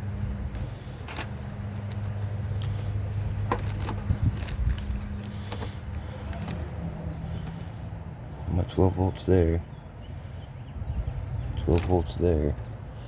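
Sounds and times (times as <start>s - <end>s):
tools clicking and rattling: 3.4s - 7.7s.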